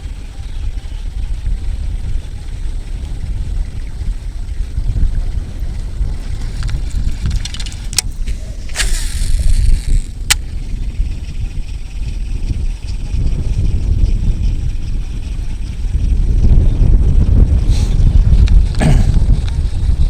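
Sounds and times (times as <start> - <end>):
wind buffeting microphone: 0.0 - 20.0
sharp clicks: 6.6 - 10.5
short hiss: 8.2 - 10.4.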